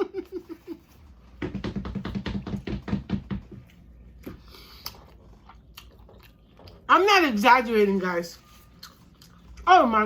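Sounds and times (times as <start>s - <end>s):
woman laughing: 0.0s - 1.0s.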